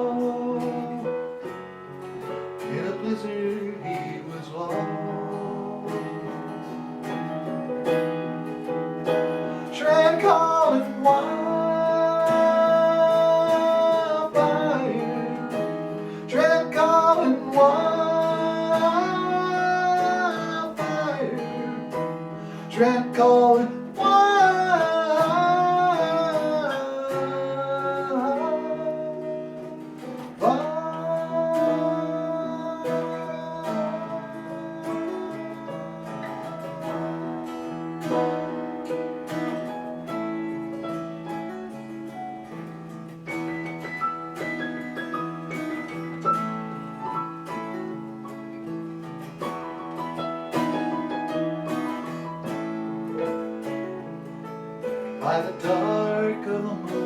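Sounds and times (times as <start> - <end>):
wordless singing: 0.0 - 1.4, 2.7 - 6.5, 9.7 - 38.3, 55.2 - 57.0
acoustic guitar: 0.0 - 57.0
piano: 0.0 - 57.0.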